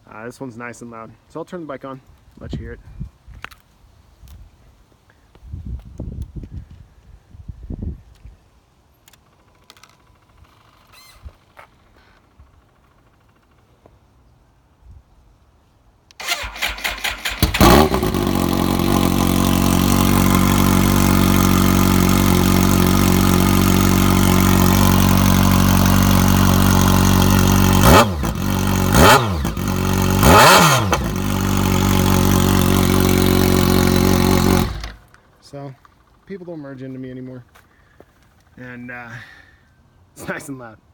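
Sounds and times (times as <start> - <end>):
motorcycle engine idling and revving: 9.6 - 13.9, 16.2 - 36.4
motorcycle starter cranking: 16.1 - 36.3.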